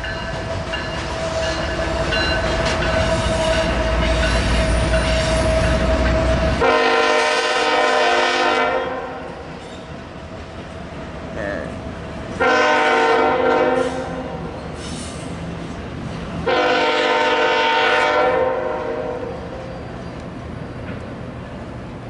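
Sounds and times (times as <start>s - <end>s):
diesel locomotive engine rumble: 0.0s - 22.0s
train horn blast: 3.0s - 9.4s, 12.4s - 14.4s, 16.4s - 19.6s.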